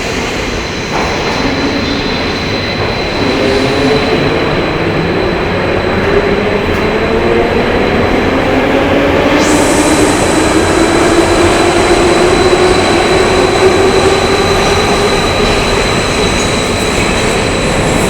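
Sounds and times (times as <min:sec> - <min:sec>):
metro train running: 0:00.0 - 0:18.0
steady high whistle: 0:09.0 - 0:18.0.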